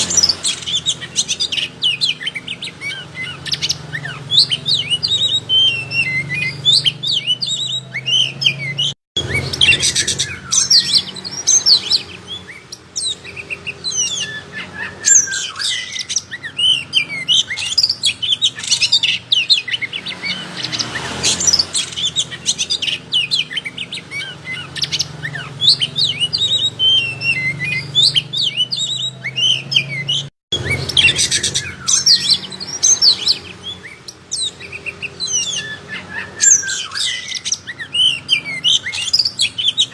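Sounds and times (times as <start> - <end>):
songbird whistles and chirps: 0.0 - 39.9.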